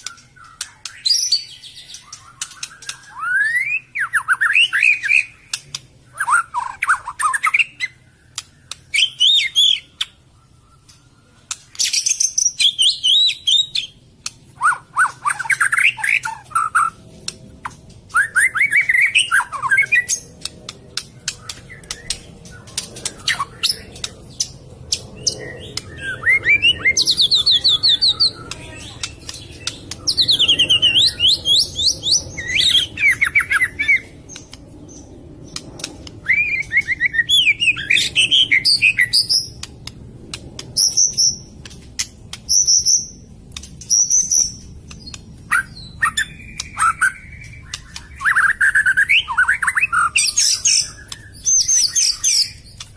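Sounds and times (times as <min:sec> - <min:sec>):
bird singing rippling notes: 0:14.6 - 0:39.7, 0:42.4 - 0:52.9.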